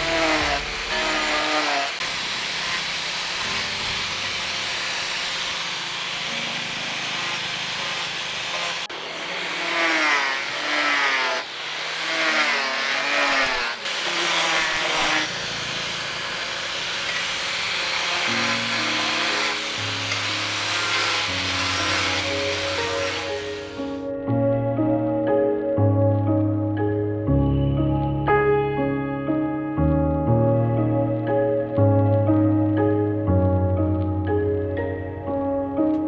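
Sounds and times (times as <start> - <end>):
background music: 0.0 - 2.0, 17.2 - 36.0.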